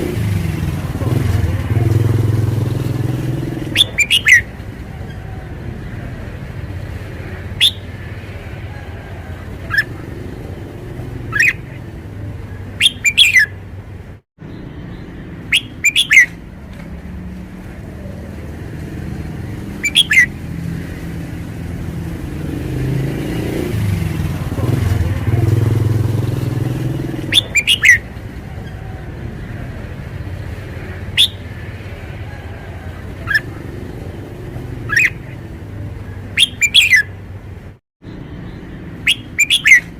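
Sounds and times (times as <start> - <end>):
bulbul singing whistled phrases: 3.1 - 6.0, 7.0 - 13.6, 14.5 - 16.4, 19.6 - 20.7, 26.3 - 29.1, 30.8 - 35.5, 36.1 - 37.2, 38.1 - 39.9.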